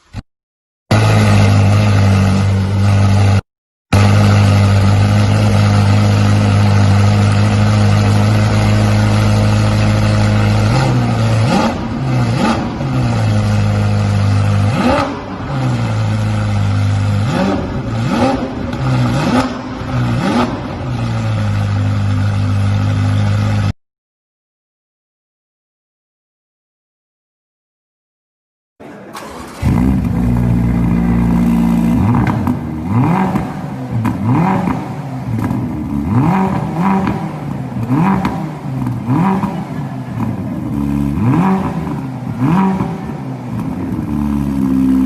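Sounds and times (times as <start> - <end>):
engine revving: 0.9 - 23.7, 29.2 - 45.0
car engine idling: 4.0 - 23.7, 29.2 - 45.0.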